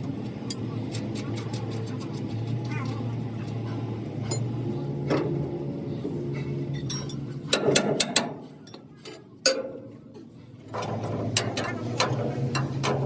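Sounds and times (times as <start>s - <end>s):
low machine hum: 0.0s - 13.0s
metal knocks and clanks: 10.7s - 13.0s.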